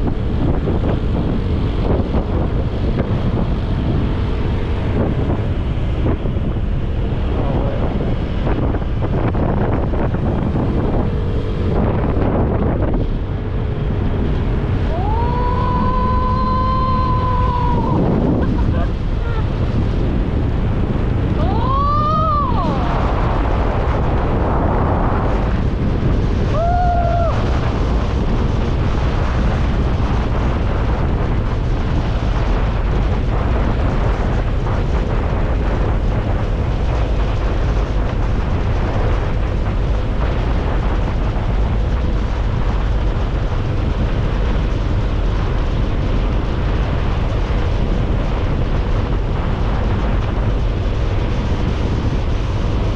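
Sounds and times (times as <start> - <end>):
motorcycle engine running: 0.0 - 26.5, 27.3 - 52.9
wind buffeting microphone: 0.0 - 52.9
rising and falling tone: 10.7 - 19.8, 21.3 - 23.6.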